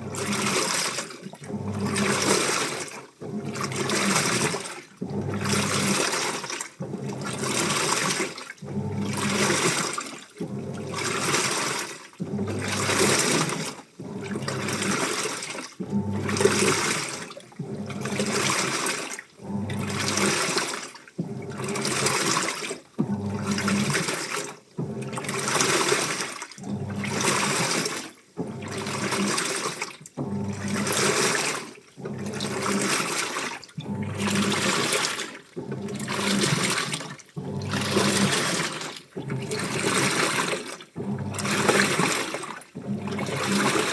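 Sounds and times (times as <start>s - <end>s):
washing machine drum turning: 0.0s - 43.9s
water sloshing: 0.0s - 43.9s
low motor hum: 15.8s - 16.8s, 33.8s - 40.2s.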